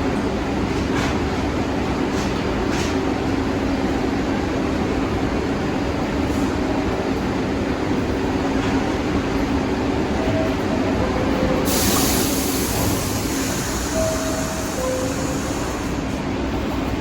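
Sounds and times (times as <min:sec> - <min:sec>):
subway train rumbling: 0:00.0 - 0:17.0
air hissing: 0:11.6 - 0:16.0.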